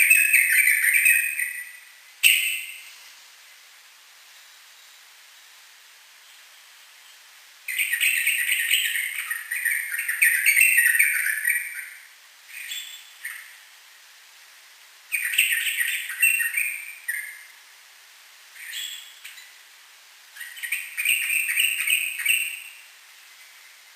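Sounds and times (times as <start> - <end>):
bird singing rapid phrases: 0.0 - 3.0, 6.3 - 13.6, 15.1 - 17.5, 18.6 - 19.6, 20.4 - 23.6
bird single calls: 0.0 - 3.0, 18.6 - 19.6, 20.4 - 22.9
faint hiss: 0.0 - 23.9.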